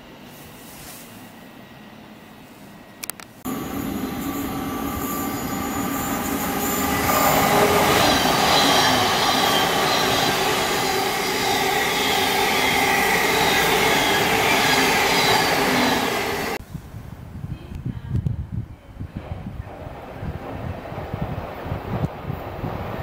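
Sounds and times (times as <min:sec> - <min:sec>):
train wheels rushing on rail: 0:03.4 - 0:16.6, 0:19.1 - 0:23.0
high whines falling in pitch: 0:03.5 - 0:16.6.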